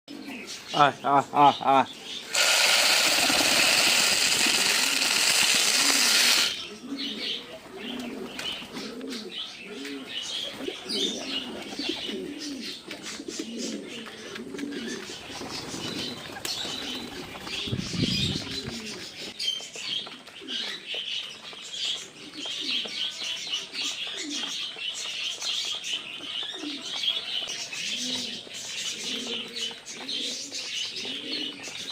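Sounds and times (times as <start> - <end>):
pigeons cooing: 0.1 - 31.9
wing flaps: 2.3 - 6.6, 15.0 - 19.3.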